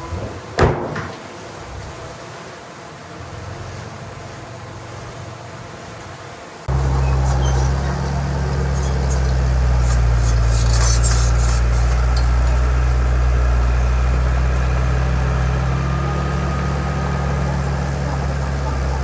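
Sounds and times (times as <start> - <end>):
heavy diesel engine running: 6.7 - 19.0.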